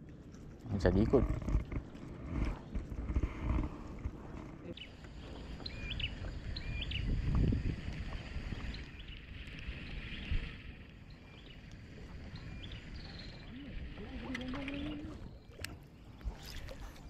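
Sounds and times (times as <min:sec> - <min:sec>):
low rumble: 0:01.0 - 0:08.9.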